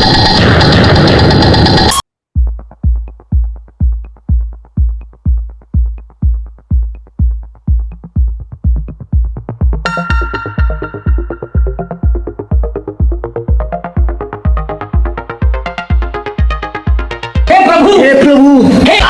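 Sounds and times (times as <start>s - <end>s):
loud steady noise: 0.0s - 2.0s
electronic music with kick drum: 0.0s - 18.0s
synth notes: 0.0s - 18.0s.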